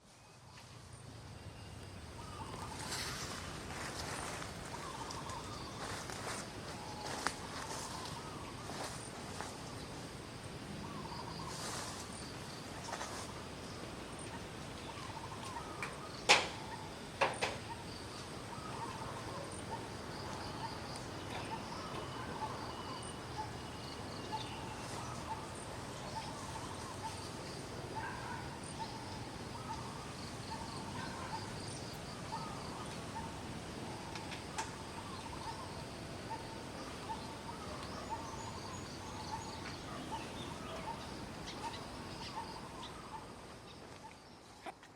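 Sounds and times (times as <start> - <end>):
insects buzzing: 0.1 - 44.9
bird chirps: 14.2 - 33.4, 34.0 - 44.7.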